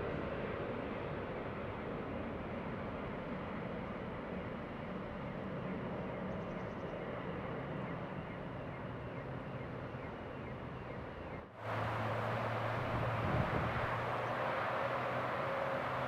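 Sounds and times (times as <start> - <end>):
jet engine rumble: 11.6 - 16.0.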